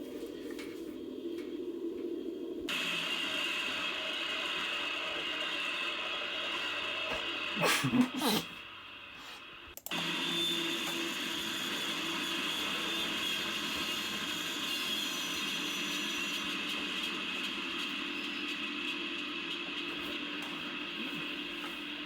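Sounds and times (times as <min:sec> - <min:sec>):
faint hum and hiss: 0:00.0 - 0:05.4.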